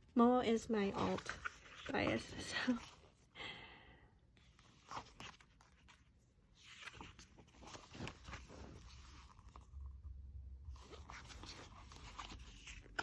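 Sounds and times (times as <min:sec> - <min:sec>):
paper pages rustling: 0:00.7 - 0:03.2, 0:04.4 - 0:10.0, 0:10.7 - 0:13.0.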